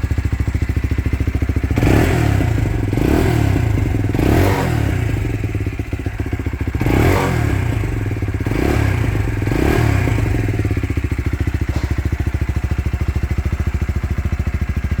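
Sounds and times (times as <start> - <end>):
motorcycle engine idling: 0.0 - 15.0
motorcycle engine revving: 0.0 - 15.0.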